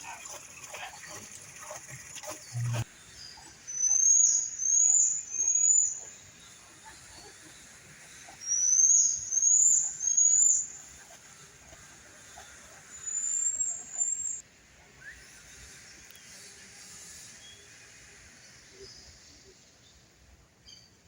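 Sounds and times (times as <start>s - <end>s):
bird whistling calls: 3.7s - 6.0s.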